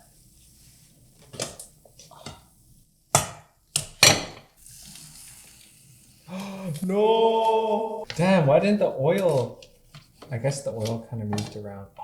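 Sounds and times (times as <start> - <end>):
faint frying sizzle: 4.5 - 8.5.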